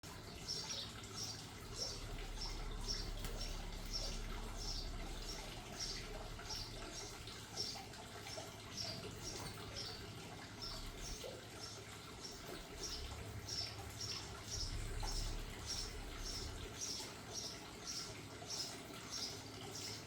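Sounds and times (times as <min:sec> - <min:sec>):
small bird chirping: 0:00.4 - 0:07.8.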